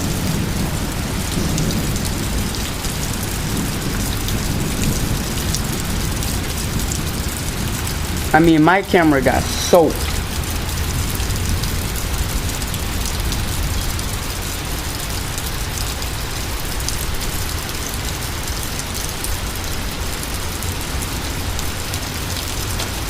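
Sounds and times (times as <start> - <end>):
wind rumble on microphone: 0.0 - 8.4
rain falling: 0.0 - 23.0.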